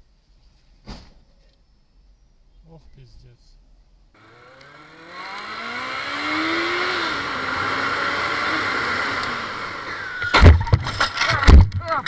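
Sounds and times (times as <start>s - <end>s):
motorcycle engine accelerating: 4.2s - 11.4s
wind and road noise: 4.2s - 12.0s.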